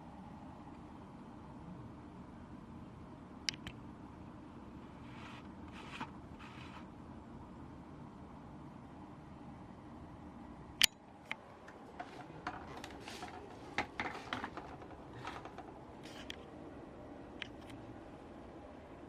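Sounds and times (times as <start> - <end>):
box fan humming: 0.0 - 19.0
clicks and knocks from fan controls: 3.4 - 3.8, 10.8 - 16.5, 17.4 - 17.8.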